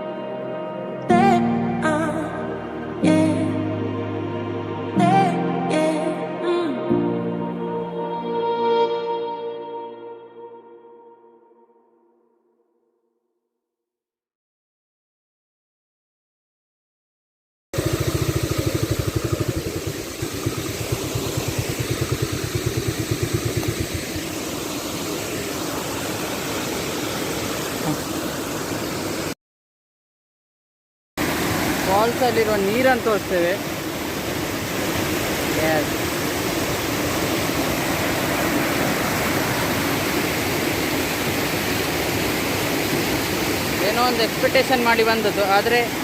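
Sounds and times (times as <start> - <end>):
engine idling with fast pulse: 17.8 - 27.0
steady rushing noise: 17.8 - 29.3, 31.2 - 46.0.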